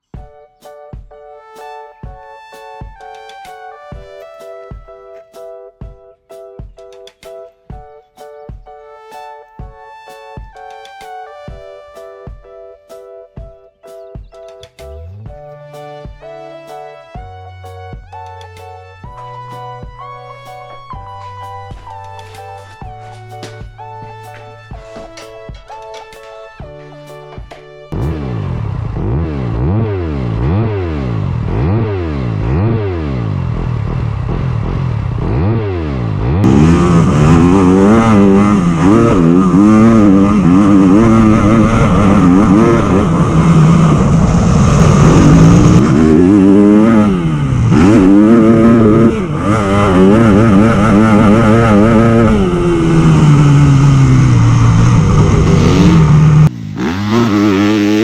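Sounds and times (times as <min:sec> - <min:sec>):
motocross bike engine revving: 0:27.9 - 0:58.0.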